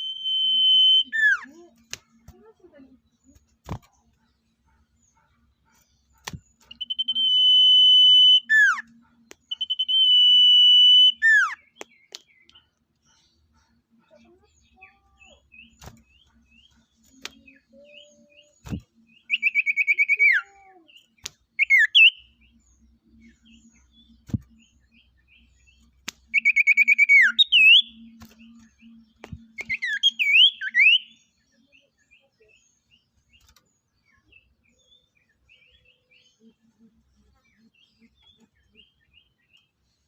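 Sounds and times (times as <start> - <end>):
songbird buzzy trill: 0.0 - 4.0, 5.8 - 13.5, 14.1 - 31.4
soft bird chirps: 0.0 - 40.0
bird whistled notes: 6.7 - 8.9, 9.5 - 11.7, 26.3 - 28.1.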